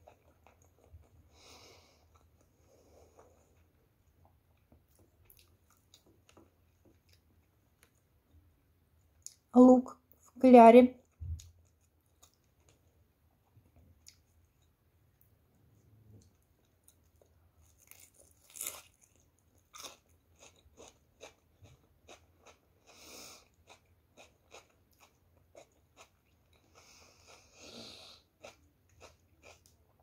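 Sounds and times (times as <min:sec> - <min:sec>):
crunchy chewing: 0:00.0 - 0:08.0, 0:16.2 - 0:27.6, 0:28.2 - 0:30.0.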